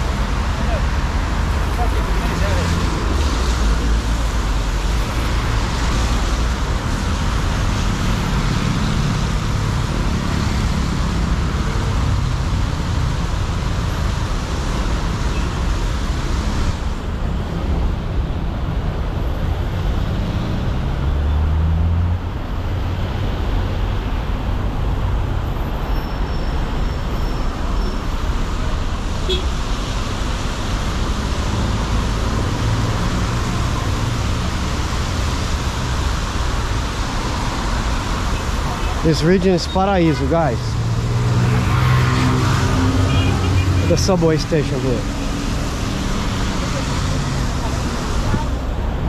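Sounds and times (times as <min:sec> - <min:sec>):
large vehicle engine passing: 0:00.0 - 0:13.2, 0:31.1 - 0:49.0
traffic engines: 0:00.0 - 0:49.0
tyre hiss on wet road: 0:27.4 - 0:39.1.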